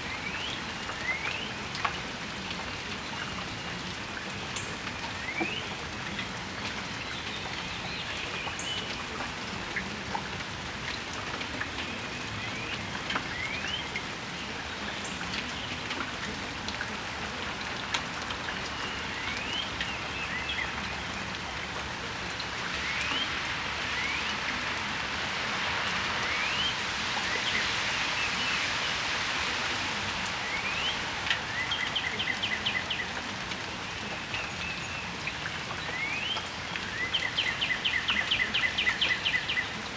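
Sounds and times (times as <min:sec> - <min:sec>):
rain pattering on a patio: 0:00.0 - 0:39.9
broad hiss: 0:19.4 - 0:33.4.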